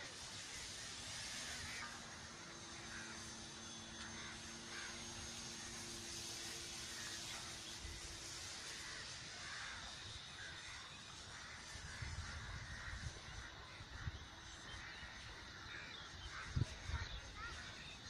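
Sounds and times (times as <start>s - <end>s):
steady hiss: 0.0s - 17.9s.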